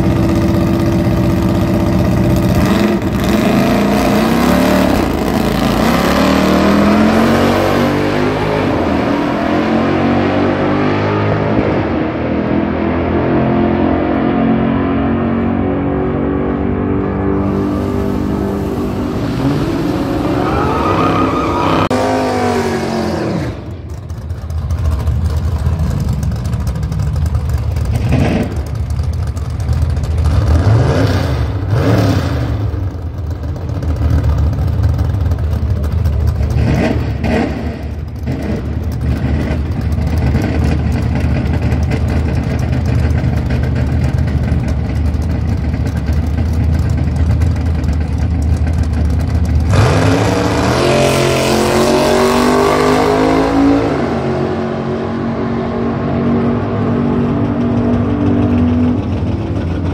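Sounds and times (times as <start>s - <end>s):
drag car engines revving: 0.0s - 59.9s
low engine rumble: 23.6s - 30.6s, 32.7s - 49.7s, 56.2s - 59.9s.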